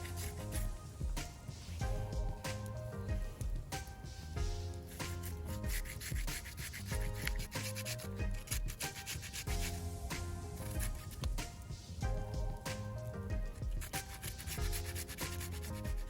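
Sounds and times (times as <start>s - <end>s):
vegetables being grated: 0.0s - 0.8s, 4.9s - 9.7s, 13.8s - 16.0s
background music: 0.0s - 16.0s.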